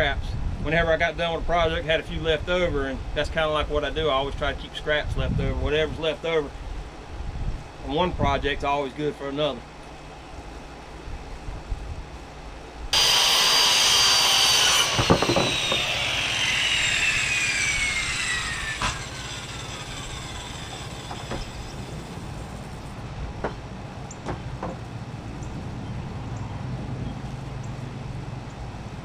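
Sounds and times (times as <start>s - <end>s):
electric saw cutting wood: 12.9s - 23.0s
saw blade whine spinning down: 12.9s - 23.0s
wooden knocks: 14.7s - 16.0s, 21.0s - 21.5s, 23.4s - 23.6s, 24.2s - 24.9s.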